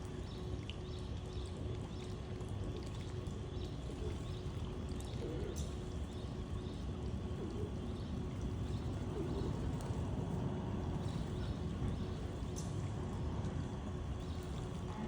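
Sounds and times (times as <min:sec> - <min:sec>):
steady low rumble: 0:05.6 - 0:15.0
pigeons cooing: 0:07.3 - 0:10.0.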